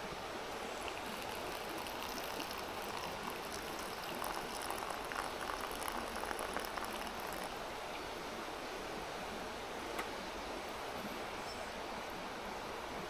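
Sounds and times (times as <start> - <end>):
mountain stream rushing: 0.4 - 7.8.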